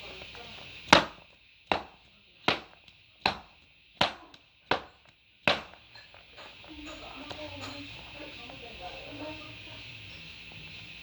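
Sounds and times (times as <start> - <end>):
baseball glove slaps: 0.9 - 5.9.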